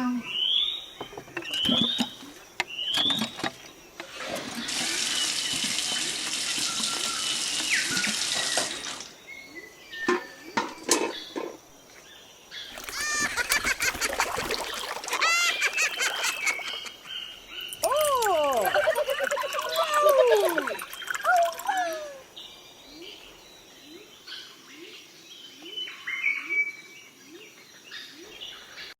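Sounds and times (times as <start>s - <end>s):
water running: 4.0s - 9.2s, 12.7s - 22.2s
chirping calls: 12.6s - 24.6s.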